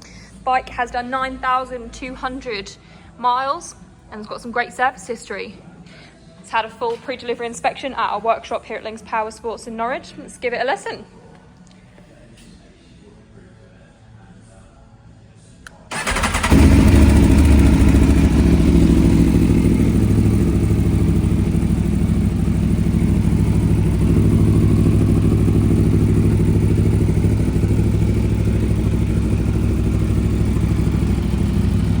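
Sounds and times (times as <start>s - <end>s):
motorcycle engine starting and idling: 15.8s - 32.0s.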